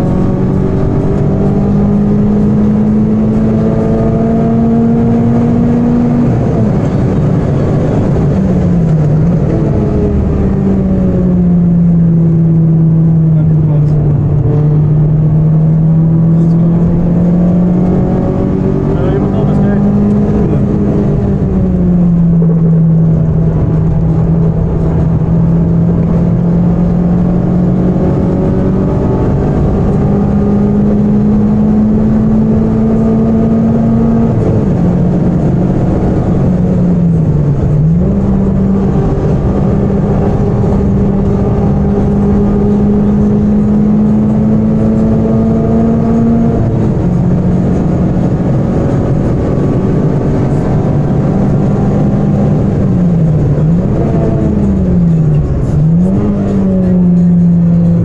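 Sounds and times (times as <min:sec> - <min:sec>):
car engine at full throttle: 0:00.0 - 0:58.0
road and wind noise: 0:00.0 - 0:58.0.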